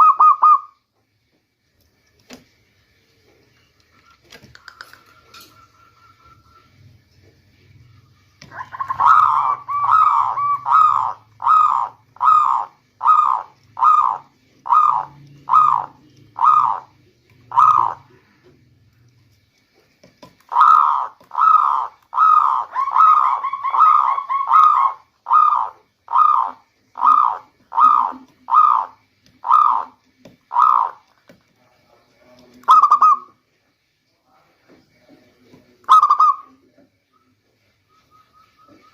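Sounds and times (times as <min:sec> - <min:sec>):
dove cooing: 0:00.0 - 0:00.8, 0:08.4 - 0:18.4, 0:20.5 - 0:31.0, 0:32.6 - 0:33.3, 0:35.9 - 0:36.6, 0:38.0 - 0:38.9.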